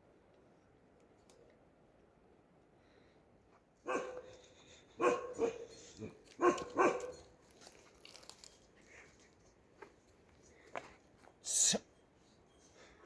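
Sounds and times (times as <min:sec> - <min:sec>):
dog barking: 0:03.8 - 0:04.4, 0:05.0 - 0:07.2.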